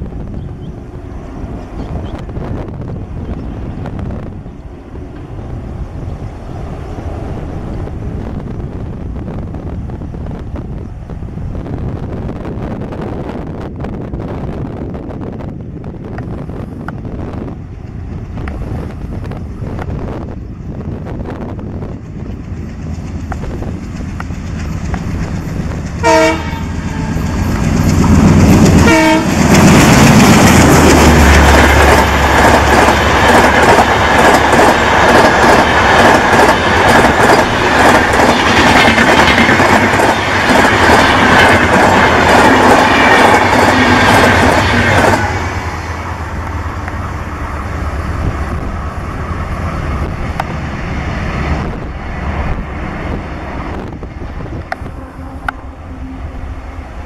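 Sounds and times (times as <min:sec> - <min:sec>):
locomotive engine rumbling: 0:00.0 - 0:57.0
train horn blasts: 0:26.0 - 0:27.5, 0:28.8 - 0:29.5, 0:54.8 - 0:56.9.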